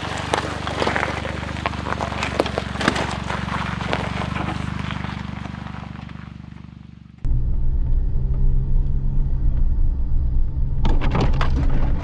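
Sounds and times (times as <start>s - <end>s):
tyres crackling on gravel: 0.0s - 7.3s
small car engine running: 0.0s - 12.0s.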